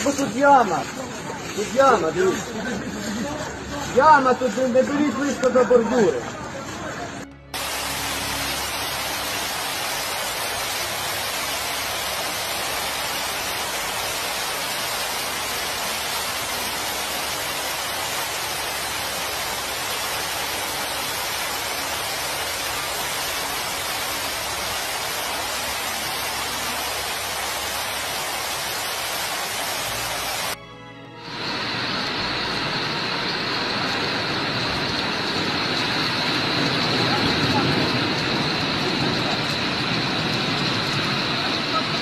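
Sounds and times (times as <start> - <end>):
steady hiss: 7.6 - 30.6.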